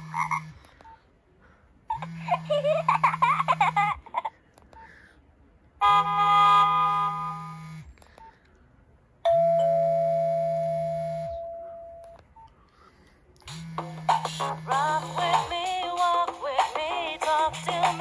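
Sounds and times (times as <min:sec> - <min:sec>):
low hum: 0:00.0 - 0:15.4
phone chord-like chime: 0:09.3 - 0:12.0
phone ringing tone: 0:09.3 - 0:12.1.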